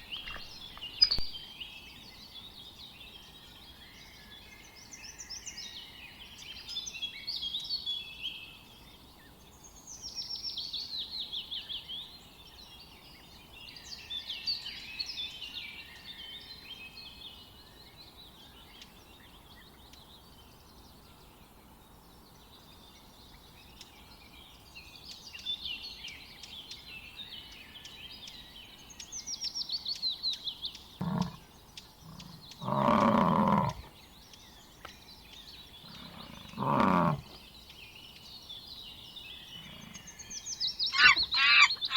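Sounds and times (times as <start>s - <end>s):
songbirds trilling: 0.0s - 41.9s
loud animal call: 31.0s - 31.4s, 32.0s - 33.9s, 35.8s - 37.3s, 40.9s - 41.9s.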